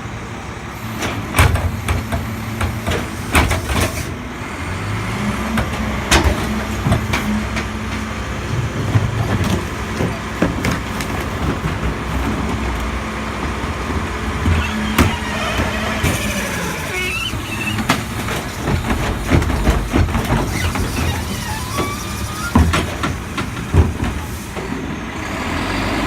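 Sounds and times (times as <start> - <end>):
truck diesel engine running: 0.0 - 26.0
sharp knocks and clanks: 1.0 - 4.1, 5.5 - 8.1, 17.3 - 24.8.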